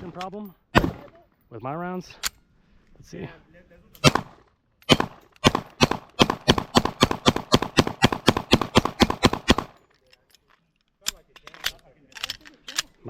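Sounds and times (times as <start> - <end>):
pistol firing rapidly: 0.8 - 1.1, 4.0 - 9.8.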